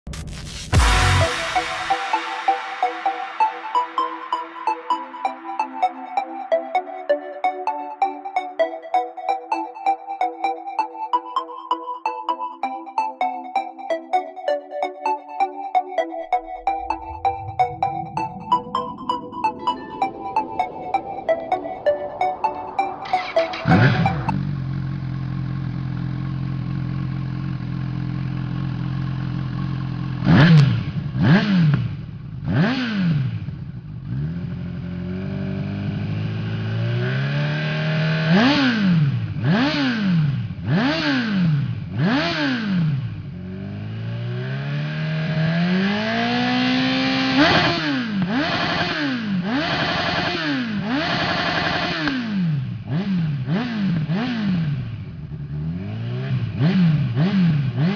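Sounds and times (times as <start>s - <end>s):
motorcycle engine revving: 23.6s - 57.9s.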